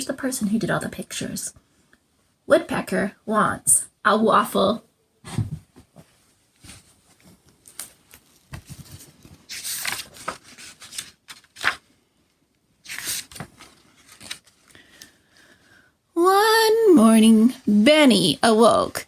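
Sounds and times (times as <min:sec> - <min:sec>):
paper rustling: 0:06.0 - 0:12.0, 0:12.8 - 0:15.0
book pages turning: 0:06.6 - 0:12.0, 0:12.8 - 0:15.0.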